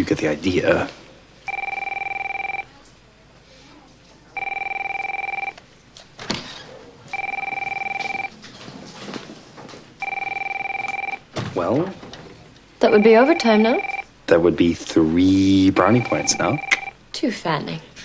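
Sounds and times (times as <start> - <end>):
telephone ringing two-tone: 1.5 - 2.7, 4.4 - 5.6, 7.1 - 8.4, 10.0 - 11.3, 12.8 - 14.1, 15.8 - 17.0.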